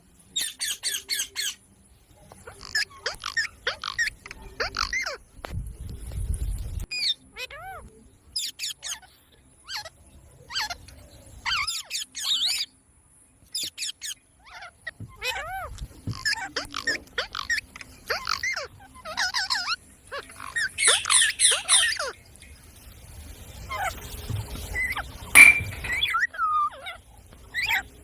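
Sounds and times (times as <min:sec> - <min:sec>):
parrot chirping and squawking: 0:20.5 - 0:22.1.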